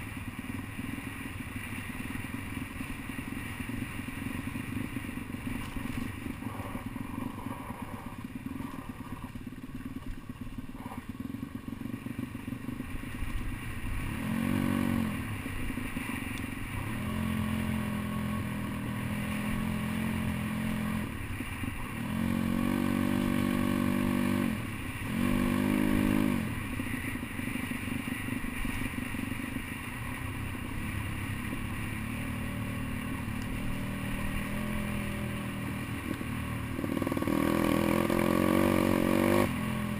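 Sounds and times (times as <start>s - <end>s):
bike rattling over rough ground: 0.0s - 17.3s
small motorcycle engine revving: 0.0s - 39.9s.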